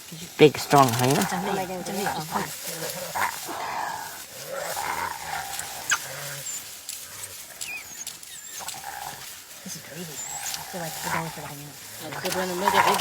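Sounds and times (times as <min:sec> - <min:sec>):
animals growling and calling: 0:00.0 - 0:13.0
thin high chirps: 0:04.5 - 0:11.4.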